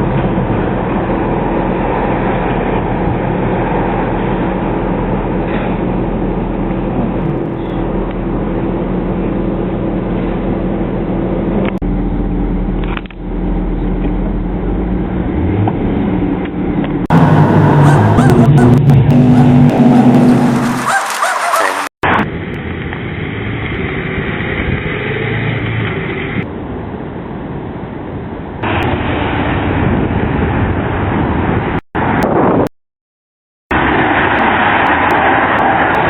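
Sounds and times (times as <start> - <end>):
louder engine: 0.0 - 26.5
car engine droning: 0.0 - 27.9.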